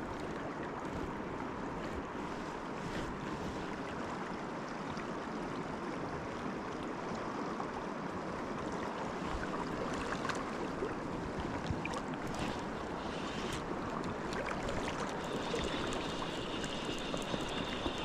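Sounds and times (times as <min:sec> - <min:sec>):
river water rushing: 0:07.5 - 0:18.0
faint ticks: 0:13.1 - 0:18.0.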